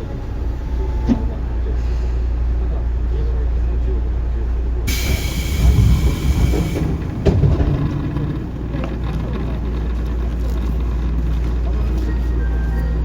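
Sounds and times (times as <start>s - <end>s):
train wheels rumbling on rails: 4.6s - 13.0s.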